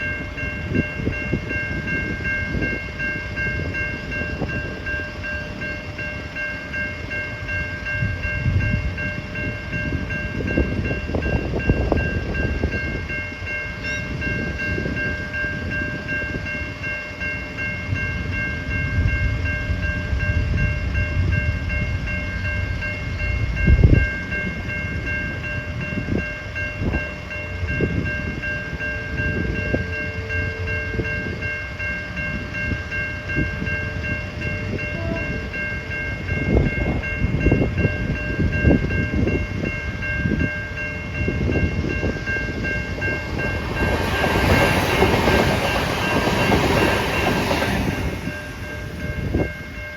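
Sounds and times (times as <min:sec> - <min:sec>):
train rumbling: 0:00.0 - 0:49.9
level crossing bell ringing: 0:22.2 - 0:49.9.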